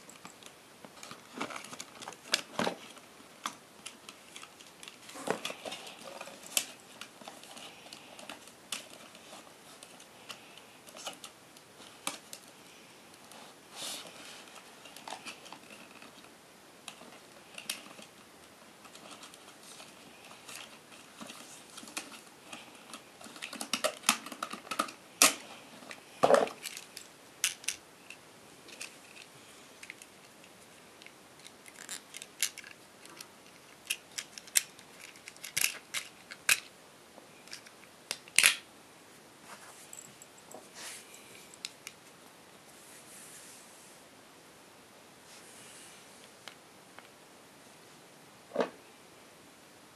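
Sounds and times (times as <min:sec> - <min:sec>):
packaging clicks and rustles: 0:00.1 - 0:12.6, 0:13.2 - 0:16.3, 0:16.9 - 0:36.7.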